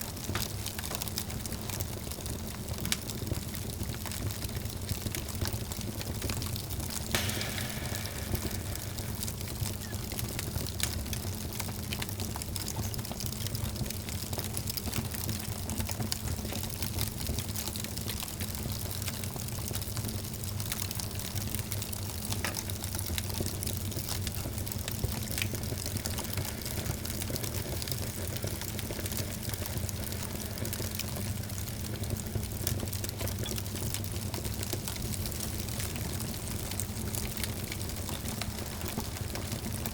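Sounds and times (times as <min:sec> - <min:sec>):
low rumble of burning: 0:00.0 - 0:39.9
wood fire crackling and popping: 0:00.0 - 0:39.9.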